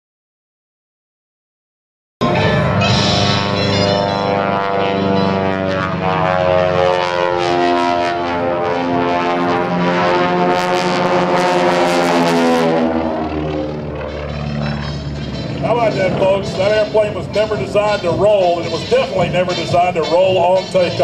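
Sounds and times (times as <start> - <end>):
aircraft radial engines droning: 2.2 - 21.0.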